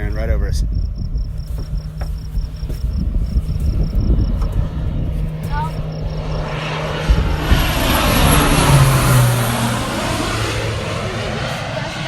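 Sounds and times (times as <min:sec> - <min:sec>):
airplane flying low overhead: 0:00.0 - 0:12.0.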